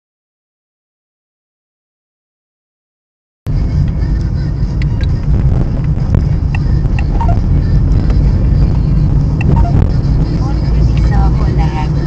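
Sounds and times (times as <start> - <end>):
car engine and road noise: 3.5 - 12.0.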